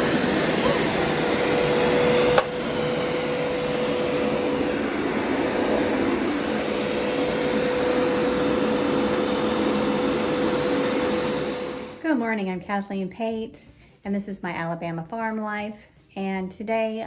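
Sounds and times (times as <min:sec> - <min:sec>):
carpet cleaner running: 0:00.0 - 0:12.0.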